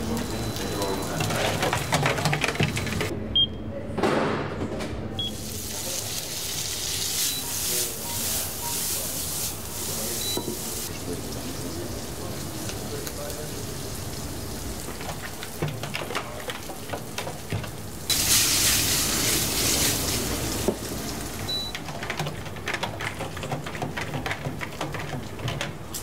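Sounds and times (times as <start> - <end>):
loud hissing sizzle: 5.4 - 15.5, 17.9 - 21.5
meat sizzling in a pan: 5.4 - 15.6, 18.0 - 21.4.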